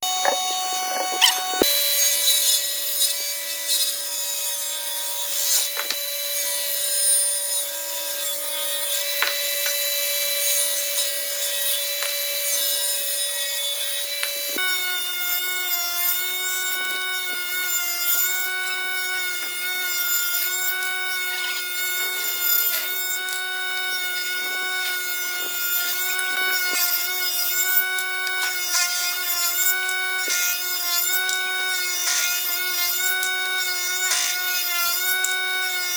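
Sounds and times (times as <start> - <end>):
woodworking power tool whining: 0.0 - 35.9.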